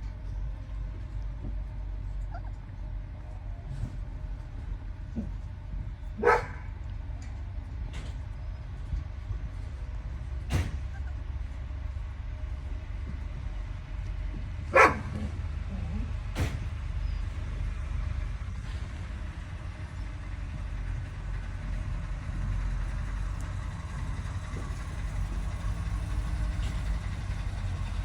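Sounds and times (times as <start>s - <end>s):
steady low rumble: 0.0s - 28.0s
dog barking: 6.2s - 6.7s, 14.7s - 15.4s.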